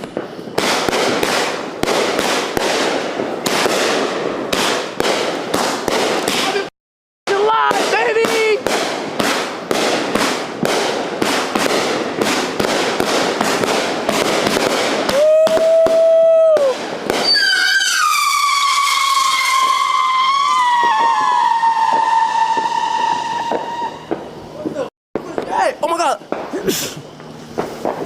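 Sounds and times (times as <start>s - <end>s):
fireworks crackling pops: 0.0s - 6.7s, 7.3s - 28.0s
long shrill falling whistle: 15.1s - 24.1s.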